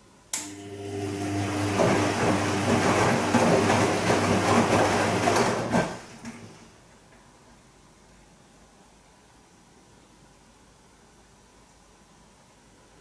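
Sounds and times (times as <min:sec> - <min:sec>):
washing machine motor hum: 0:00.4 - 0:06.8
wet laundry tumbling and sloshing: 0:01.3 - 0:06.6.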